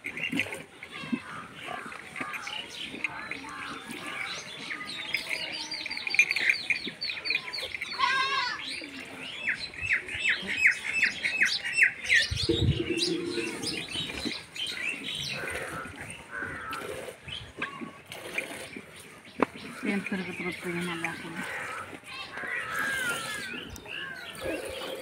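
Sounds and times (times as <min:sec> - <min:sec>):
bird warbling trill: 0:12.3 - 0:14.3.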